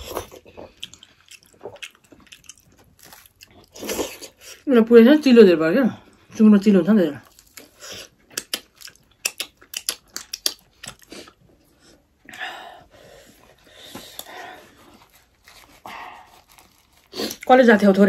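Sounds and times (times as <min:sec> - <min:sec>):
crunchy chewing: 0:00.0 - 0:04.6, 0:14.0 - 0:17.5.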